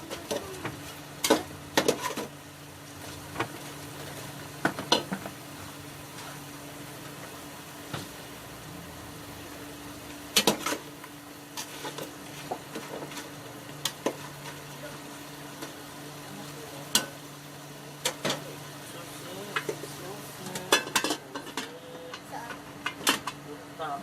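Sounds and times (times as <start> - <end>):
chicken sizzling in a pot: 0.0 - 23.8.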